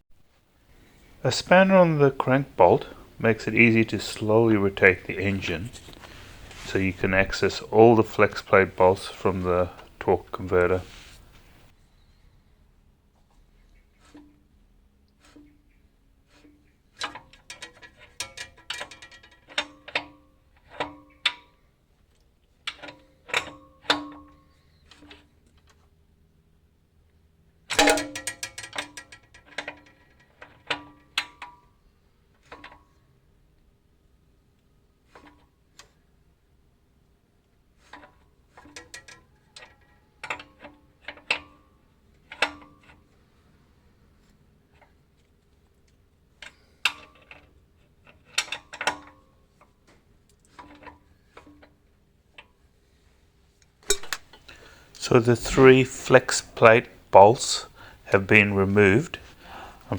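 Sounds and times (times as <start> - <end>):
metal tools clinking on steel: 53.9 - 59.2.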